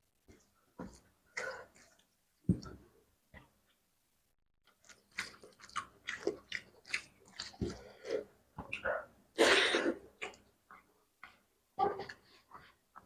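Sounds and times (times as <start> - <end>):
wet chewing smacks: 4.7 - 8.9.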